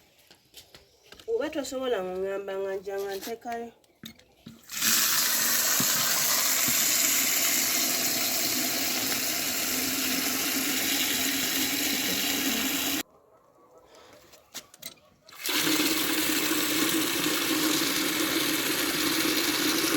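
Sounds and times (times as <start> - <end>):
running water rushing: 4.7 - 13.0.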